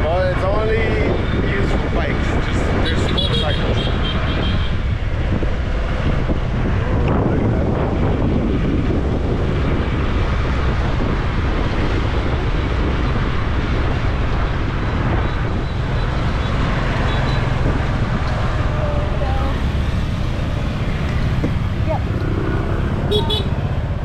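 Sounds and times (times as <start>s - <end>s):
traffic: 0.0s - 24.0s
wind buffeting microphone: 0.0s - 24.0s
motorbike engine humming: 6.9s - 24.0s.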